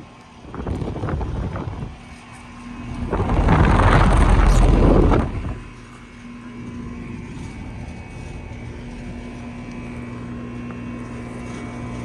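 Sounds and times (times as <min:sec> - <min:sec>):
air conditioner units humming: 0:00.0 - 0:12.0
wind buffeting microphone: 0:00.4 - 0:05.8.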